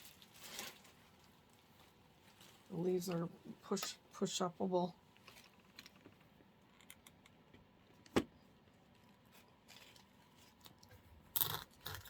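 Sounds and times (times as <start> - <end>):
artificial flowers rustling: 0.0 - 6.2, 8.7 - 12.0.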